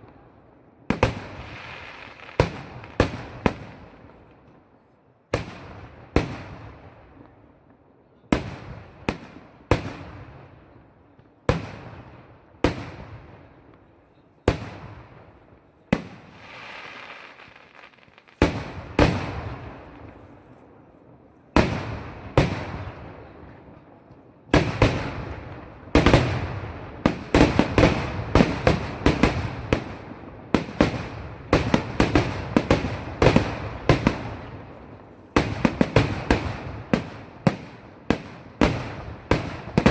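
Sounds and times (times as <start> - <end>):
fireworks bangs: 0.8 - 4.2, 14.5 - 20.6, 21.5 - 39.9
fireworks hissing: 16.3 - 18.4.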